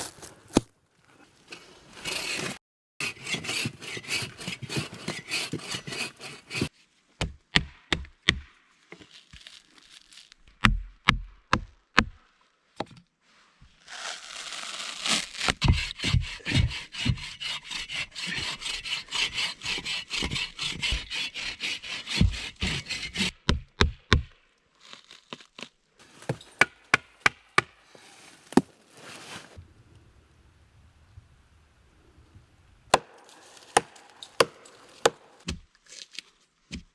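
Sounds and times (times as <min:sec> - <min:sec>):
hand saw cutting wood: 0:01.5 - 0:06.7, 0:15.0 - 0:23.4, 0:26.0 - 0:29.6, 0:32.9 - 0:35.5.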